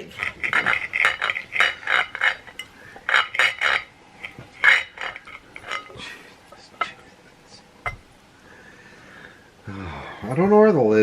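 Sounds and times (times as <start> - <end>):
knife and fork scraping plate: 0.0 - 7.0.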